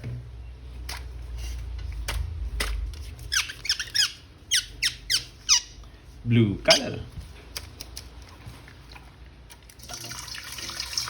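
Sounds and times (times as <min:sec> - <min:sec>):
short high squeaks: 0:03.2 - 0:05.8.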